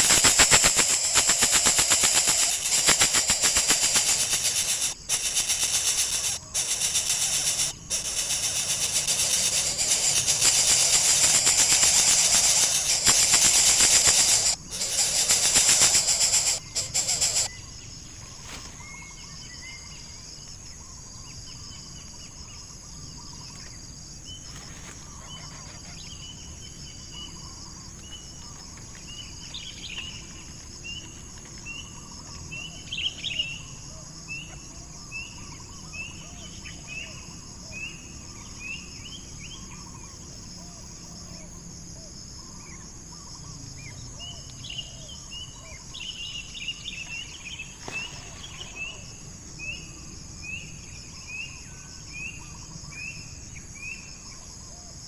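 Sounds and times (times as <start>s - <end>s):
bird chirping: 0.0s - 17.6s
crickets droning: 0.0s - 55.0s.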